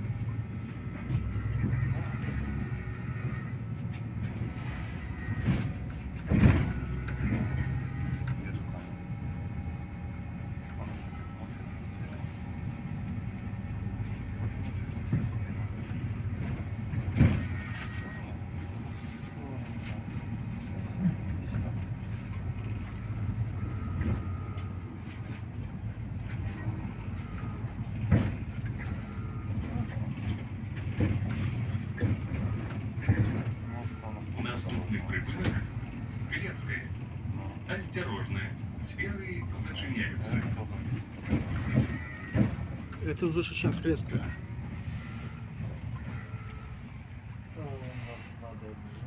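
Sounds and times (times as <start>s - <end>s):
bus doors rushing with thud: 0.0s - 49.0s
bus engine hum: 0.0s - 49.0s.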